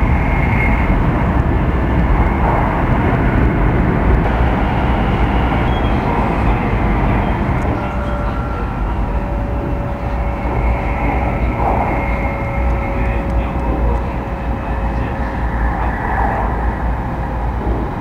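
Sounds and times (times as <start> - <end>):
train wheels rumbling on rails: 0.0 - 18.0
faint steady whine: 4.1 - 18.0.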